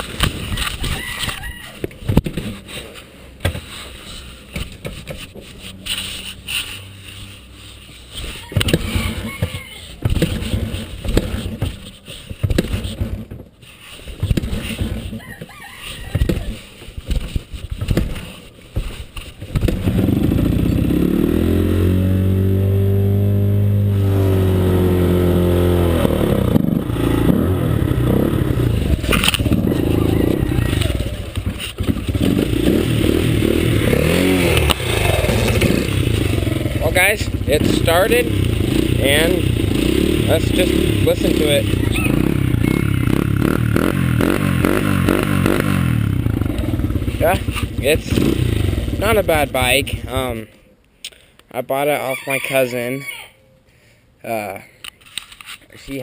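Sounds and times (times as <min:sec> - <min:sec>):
motorcycle engine running: 0:10.0 - 0:13.3, 0:19.5 - 0:50.4.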